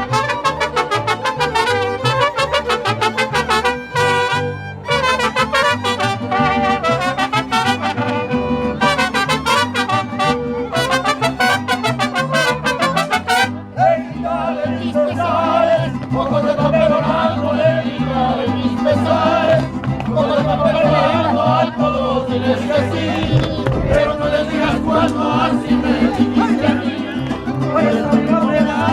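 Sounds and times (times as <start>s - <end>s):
trumpets playing melody: 0.0s - 13.6s
bass line: 0.0s - 28.9s
person singing: 14.4s - 28.9s.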